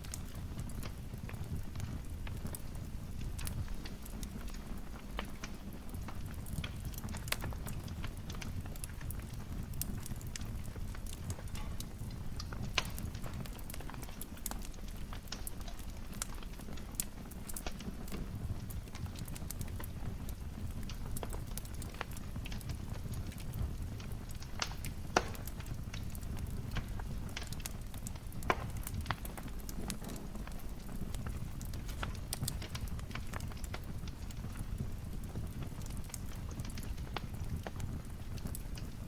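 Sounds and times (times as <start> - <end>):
fire rumbling and crackling: 0.0 - 39.0
logs popping: 24.6 - 30.3.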